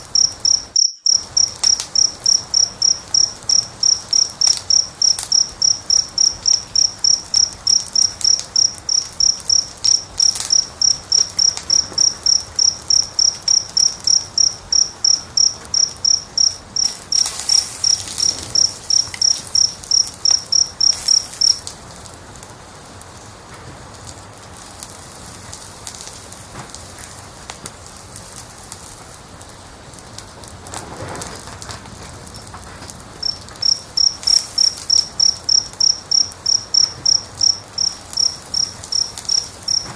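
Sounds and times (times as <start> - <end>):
cricket chirping: 0.0 - 21.7, 33.1 - 39.9
wood fire crackling: 0.0 - 39.9.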